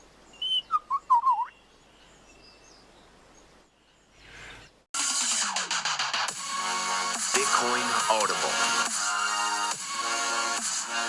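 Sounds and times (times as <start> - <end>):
faint birdsong: 0.0 - 4.9
electronic dance music: 5.0 - 11.0.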